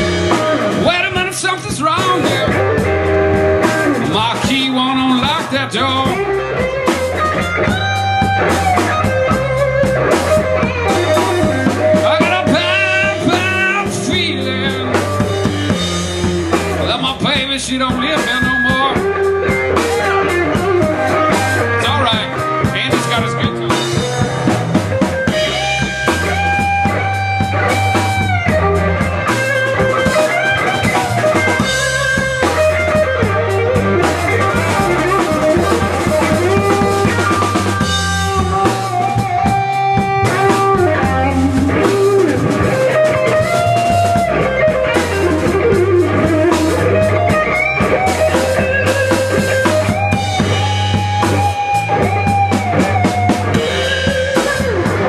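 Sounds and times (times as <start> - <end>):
bass: 0.0 - 55.0
drum kit: 0.0 - 55.0
lead guitar bending notes: 0.0 - 55.0.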